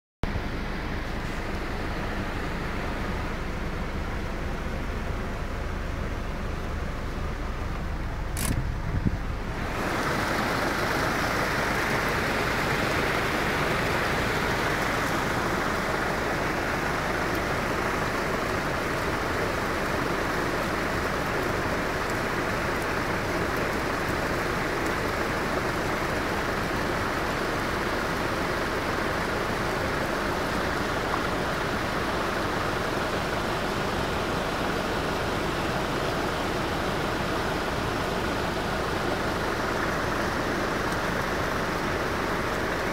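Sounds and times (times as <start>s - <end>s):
floodwater rushing: 0.4s - 42.9s
low rumble: 7.8s - 9.8s
brief click: 8.3s - 8.7s.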